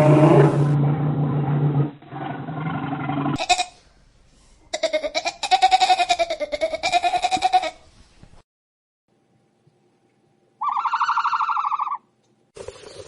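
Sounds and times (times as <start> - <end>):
deep low animal sound: 0.0 - 3.4.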